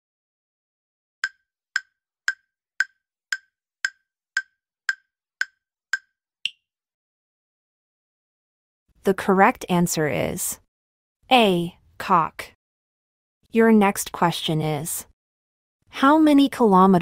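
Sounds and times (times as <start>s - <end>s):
higher-pitched tick: 1.2s - 6.1s
wood-block timer ticks: 1.2s - 6.6s.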